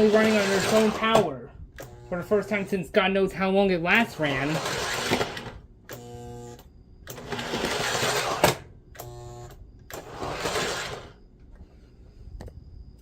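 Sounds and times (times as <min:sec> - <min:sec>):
model train motor whirring: 0:00.0 - 0:01.2, 0:01.8 - 0:02.2, 0:04.0 - 0:11.2
steady buzzing hum: 0:00.0 - 0:13.0.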